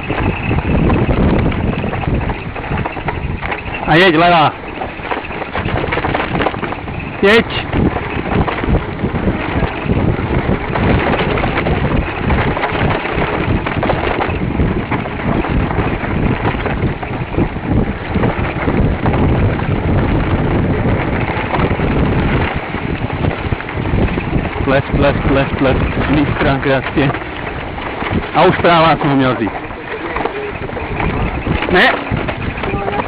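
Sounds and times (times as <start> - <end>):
bike rattles and knocks: 0.0 - 33.0
wind buffeting microphone: 0.0 - 33.0.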